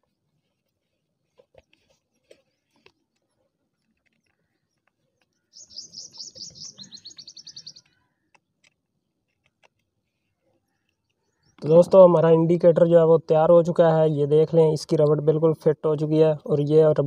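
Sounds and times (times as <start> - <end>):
bird trilling: 5.5 - 8.3.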